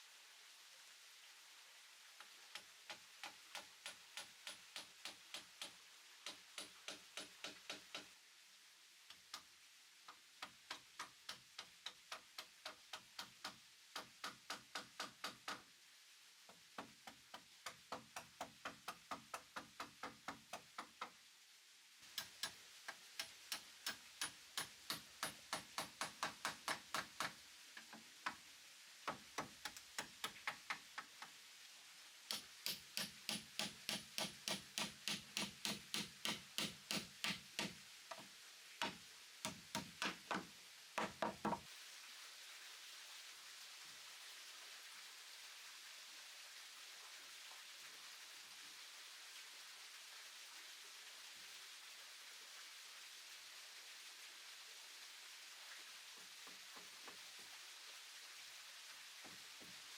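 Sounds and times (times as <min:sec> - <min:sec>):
hand tool knocking on wood: 0:10.4 - 0:15.6, 0:23.2 - 0:27.4, 0:32.3 - 0:38.2, 0:38.8 - 0:41.6.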